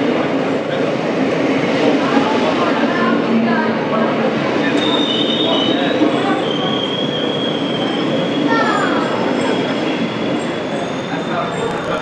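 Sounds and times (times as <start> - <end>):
rumble of train cars: 0.0 - 12.0
train wheels squealing on rails: 4.2 - 12.0.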